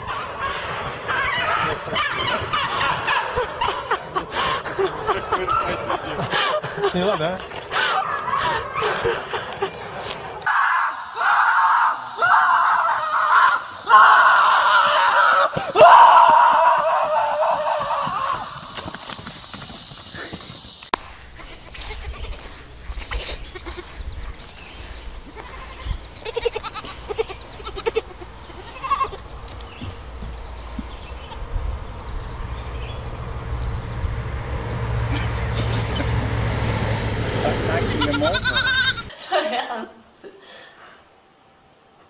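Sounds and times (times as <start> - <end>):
animal screaming cries: 0.0 - 4.5, 10.5 - 18.7, 37.9 - 39.1
hooves trotting on grass: 0.0 - 10.5, 12.8 - 31.4
goat kids bleating: 10.7 - 16.0, 21.4 - 24.0, 25.3 - 29.3, 37.9 - 39.1
low rumble: 29.3 - 38.0.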